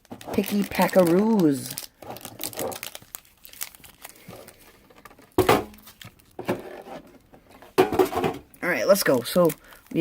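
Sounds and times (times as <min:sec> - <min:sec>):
foil wrappers crinkling: 0:00.0 - 0:07.7, 0:08.6 - 0:10.0.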